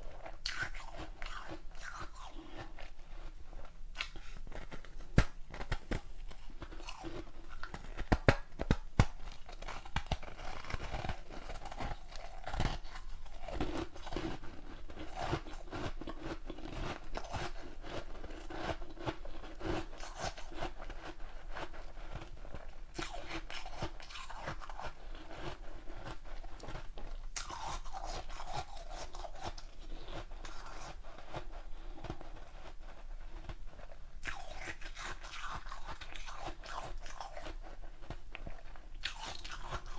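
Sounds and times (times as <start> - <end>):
chewing ice crunching: 0.1 - 32.7, 33.3 - 39.9
ice cracking between teeth: 39.0 - 39.9.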